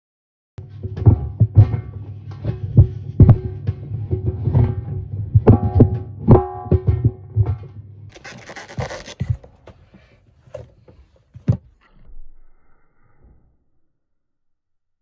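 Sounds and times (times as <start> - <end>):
music with thumping beat: 0.6 - 7.8
rubbing scratching sound: 8.1 - 11.2.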